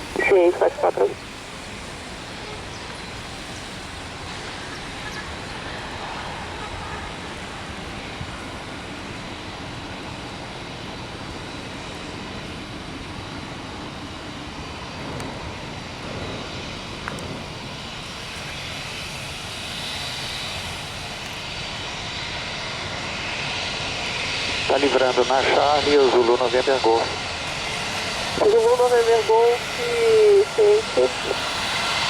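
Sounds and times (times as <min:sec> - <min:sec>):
aircraft engines rushing: 0:00.0 - 0:32.0.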